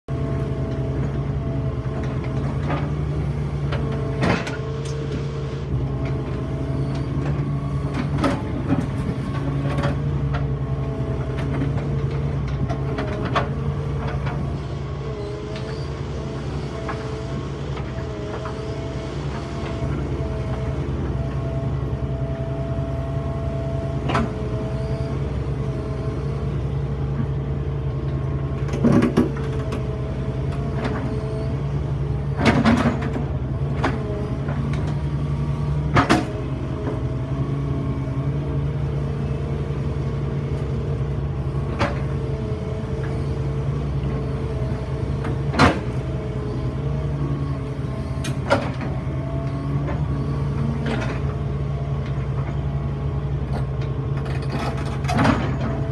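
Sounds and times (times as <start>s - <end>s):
excavator diesel engine running: 0.1s - 55.9s.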